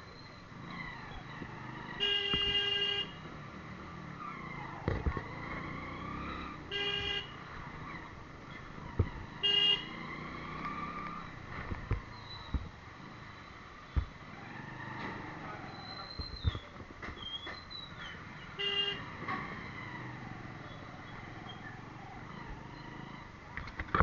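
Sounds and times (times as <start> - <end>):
traffic engine noise: 0.0 - 24.0
vehicle horn toots: 2.0 - 3.2, 6.7 - 7.4, 9.4 - 10.0, 18.6 - 19.1.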